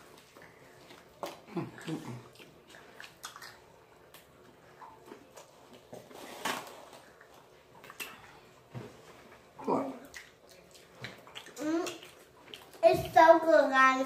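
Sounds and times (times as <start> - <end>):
chewing and biting food: 0.0 - 6.2, 10.0 - 12.8
soft mouth clicks and smacks: 0.2 - 5.8, 7.2 - 8.3, 10.0 - 12.8.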